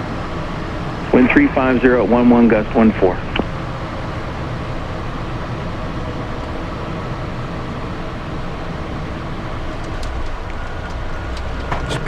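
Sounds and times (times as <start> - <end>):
turbofan engine noise: 0.0 - 12.0.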